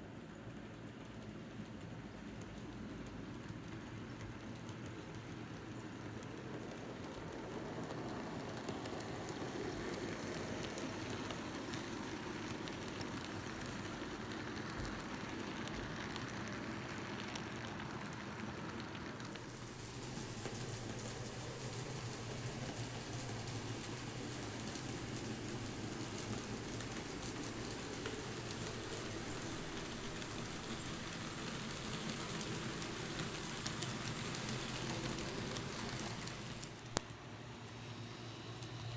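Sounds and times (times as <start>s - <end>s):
model train running on track: 0.0s - 38.9s
bright hiss: 19.3s - 37.0s.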